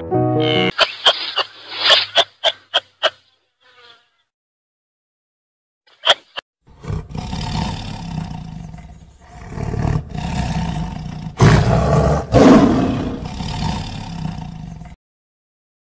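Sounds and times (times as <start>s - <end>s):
tiger growling: 6.7s - 15.0s.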